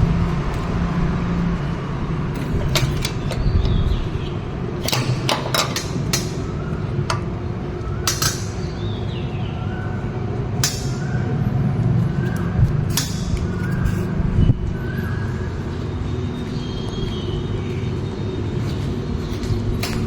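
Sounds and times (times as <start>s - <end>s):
low vehicle rumble: 0.0s - 20.0s
sharp clicks and knocks: 2.4s - 7.4s, 8.0s - 8.7s.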